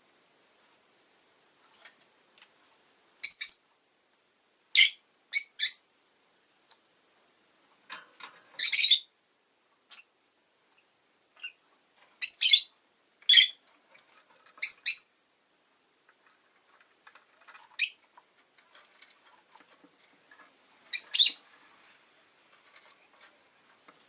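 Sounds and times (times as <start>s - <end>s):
lovebird shrill chirps: 3.2s - 3.7s, 4.7s - 5.8s, 8.6s - 9.1s, 12.2s - 12.7s, 13.3s - 13.6s, 14.6s - 15.1s, 20.9s - 21.4s.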